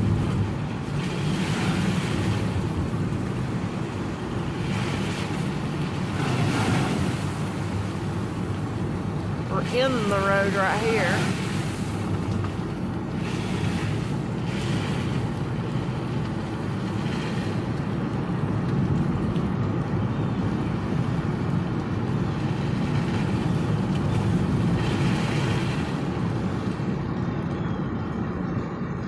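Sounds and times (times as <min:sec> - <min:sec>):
flooded creek rushing: 0:00.0 - 0:27.1.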